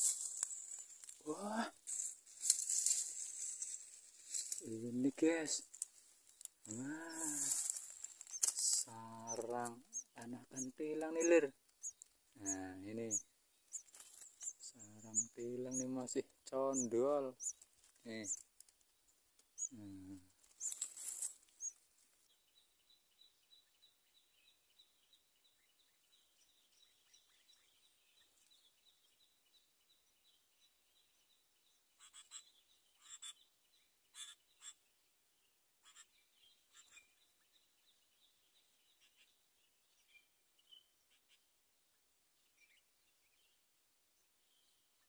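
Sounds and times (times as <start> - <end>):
faint chirps: 6.6 - 18.4, 19.6 - 20.9.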